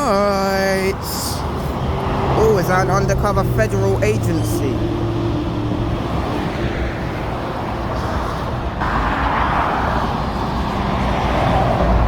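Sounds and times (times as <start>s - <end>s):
motorway traffic passing: 0.0s - 12.0s.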